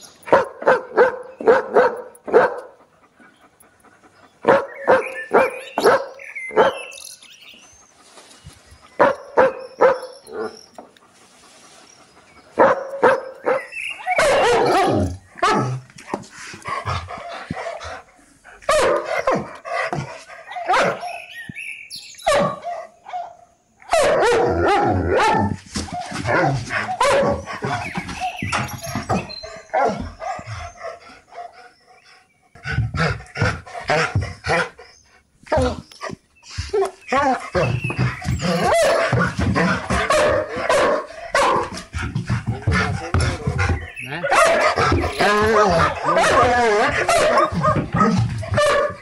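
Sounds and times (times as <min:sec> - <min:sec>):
dog barking in dense volleys: 0:00.2 - 0:02.8, 0:04.4 - 0:07.0, 0:09.0 - 0:10.6, 0:12.6 - 0:16.2, 0:18.6 - 0:21.3, 0:22.2 - 0:28.4, 0:29.0 - 0:31.5, 0:37.5 - 0:42.4, 0:43.8 - 0:49.0
dog barking sharply: 0:00.3 - 0:02.6, 0:40.1 - 0:41.6, 0:48.5 - 0:49.0.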